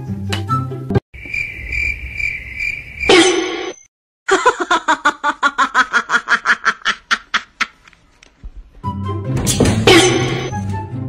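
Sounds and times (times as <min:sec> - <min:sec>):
person laughing: 0:04.3 - 0:07.9.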